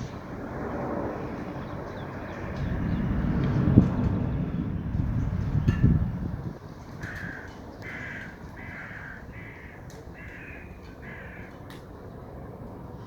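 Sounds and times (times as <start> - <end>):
steady low rumble: 0.0 - 11.4
bird calls: 6.6 - 11.8.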